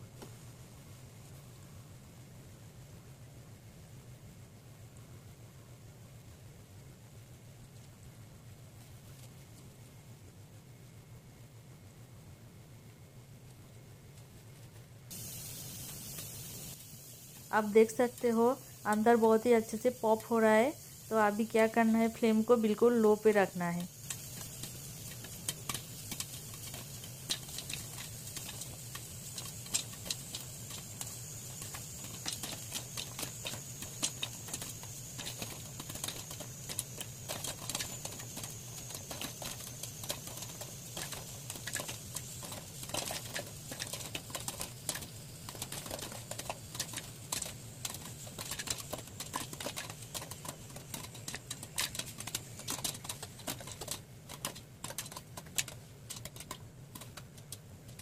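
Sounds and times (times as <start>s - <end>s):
steady low hum: 0.0s - 58.0s
popcorn popping in a covered pan: 15.1s - 58.0s.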